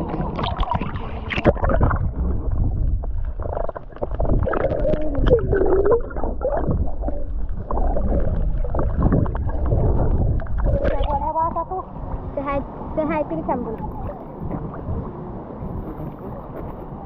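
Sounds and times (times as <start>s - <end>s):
heavy low rumble: 0.0s - 13.0s
muffled water sloshing and gurgling: 0.0s - 13.0s
irregular crackles: 0.4s - 11.2s.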